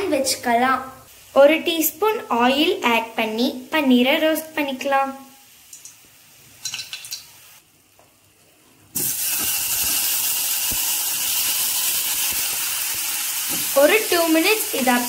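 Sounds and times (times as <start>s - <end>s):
food frying sizzle: 0.1s - 15.0s.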